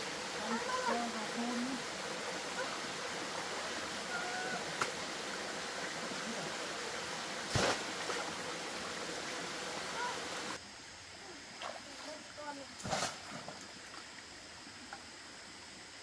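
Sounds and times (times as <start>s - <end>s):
flowing water rushing: 0.0s - 10.6s
sharp knock or splash: 7.5s - 8.2s, 12.8s - 13.6s.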